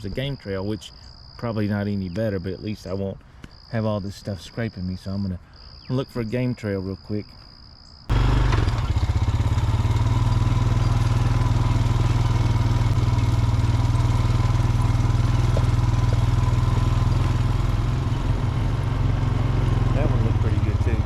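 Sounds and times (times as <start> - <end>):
atv engine running: 8.1 - 21.0.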